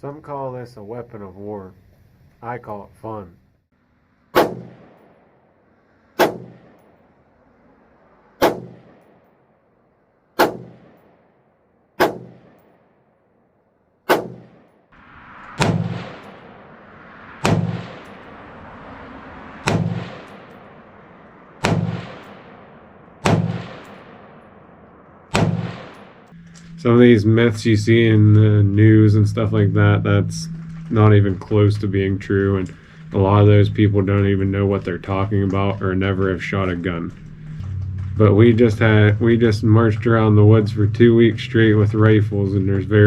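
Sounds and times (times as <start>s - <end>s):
rifle shots echoing: 4.3s - 7.3s, 8.4s - 9.6s, 10.4s - 13.2s, 14.1s - 26.8s, 28.3s - 42.9s
steady background noise: 14.1s - 43.0s.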